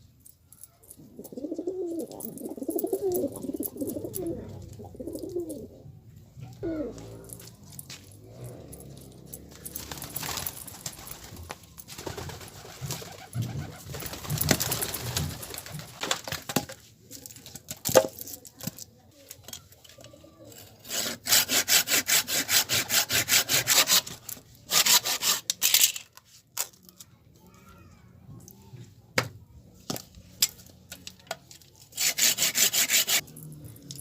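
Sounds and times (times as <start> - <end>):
handsaw cutting wood: 20.6 - 25.5, 32.0 - 33.2.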